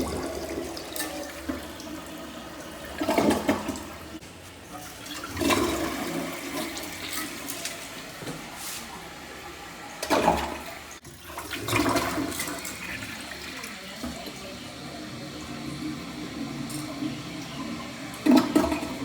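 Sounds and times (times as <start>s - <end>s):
toilet flushing: 0.0s - 19.0s.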